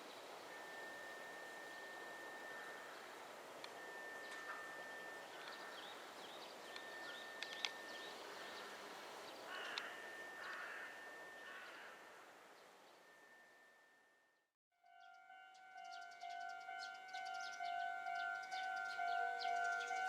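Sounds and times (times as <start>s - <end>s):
outdoor background hiss: 0.0s - 19.9s
thin high tone: 0.4s - 9.0s
small birds chirping: 4.2s - 10.7s, 15.0s - 20.0s
crow cawing: 9.5s - 12.3s.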